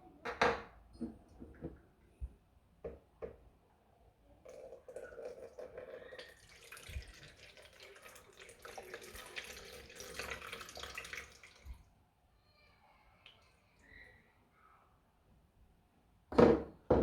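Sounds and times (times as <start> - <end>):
tap water splashing into sink: 4.6 - 11.8.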